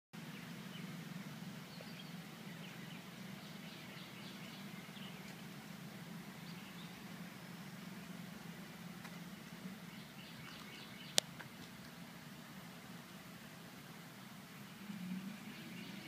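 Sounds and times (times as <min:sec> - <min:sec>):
birds chirping faintly: 0:00.2 - 0:16.0.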